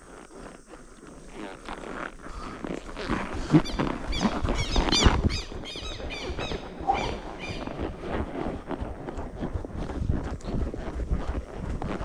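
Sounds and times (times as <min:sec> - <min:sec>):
horse walking on trail: 0:00.0 - 0:12.0
bird squawking: 0:03.6 - 0:07.9.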